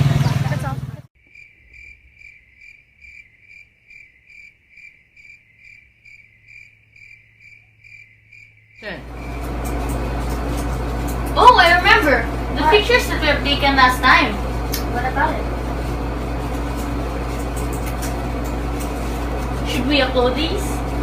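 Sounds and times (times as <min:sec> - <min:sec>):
cricket chirping: 0:01.2 - 0:09.5.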